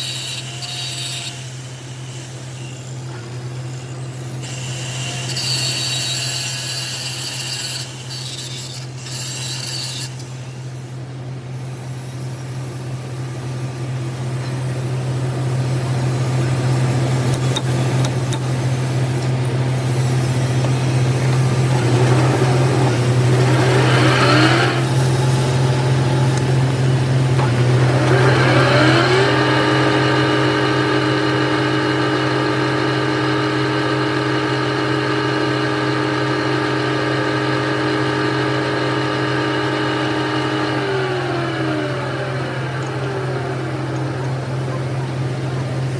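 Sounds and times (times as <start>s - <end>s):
machine motor humming: 15.0s - 45.9s
rising machine whine: 19.2s - 45.9s.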